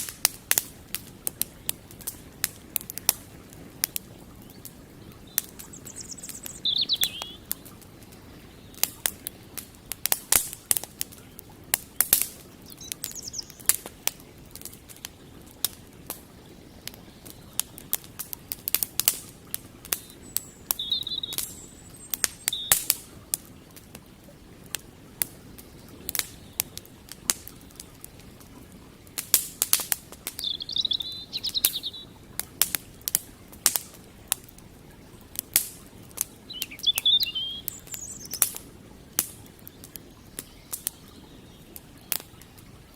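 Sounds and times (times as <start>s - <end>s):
birds chirping: 0.0s - 29.0s, 30.1s - 35.2s, 35.9s - 42.9s
campfire crackling and popping: 0.0s - 42.9s
steady background hiss: 0.0s - 42.9s.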